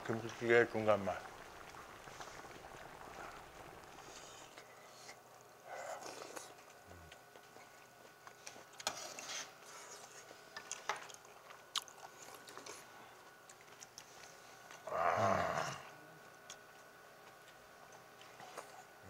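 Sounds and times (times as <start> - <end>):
man chewing: 4.0 - 14.8.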